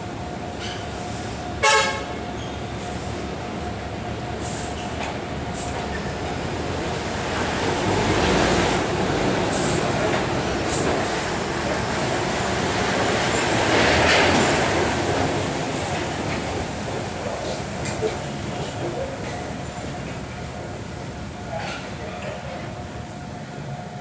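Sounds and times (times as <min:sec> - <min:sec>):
vehicle horn honk: 0:01.6 - 0:02.1.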